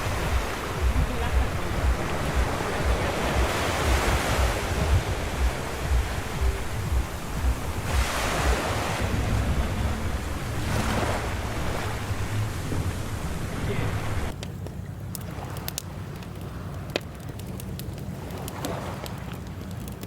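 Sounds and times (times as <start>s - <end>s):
wind buffeting microphone: 0.0s - 14.3s
ocean waves breaking on beach: 0.0s - 14.4s.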